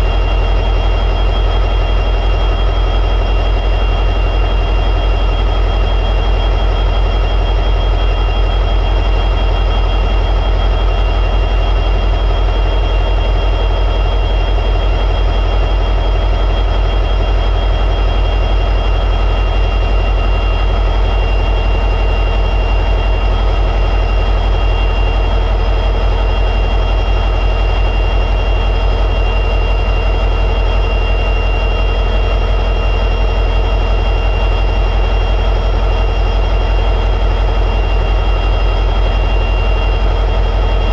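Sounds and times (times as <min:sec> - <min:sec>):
high whine: 0:00.0 - 0:40.9.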